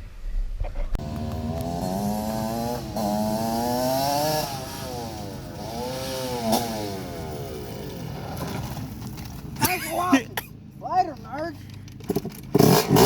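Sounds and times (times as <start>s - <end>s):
off-road vehicle engine revving: 1.0s - 10.5s, 12.1s - 13.0s.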